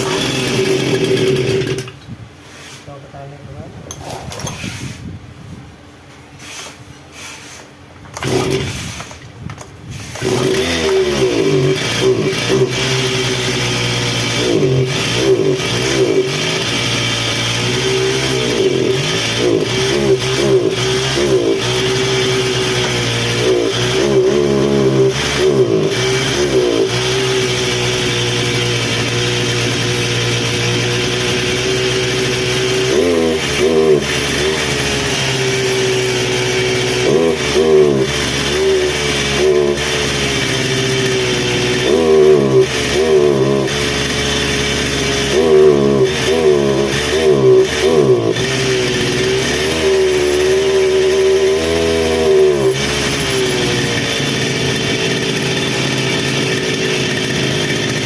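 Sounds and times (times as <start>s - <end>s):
brush cutter engine revving: 0.0s - 2.2s, 8.1s - 58.0s.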